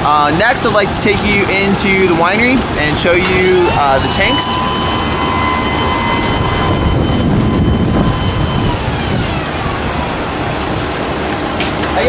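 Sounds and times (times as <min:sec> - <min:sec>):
machinery running loudly: 0:00.0 - 0:12.0
motor whine: 0:00.6 - 0:11.8.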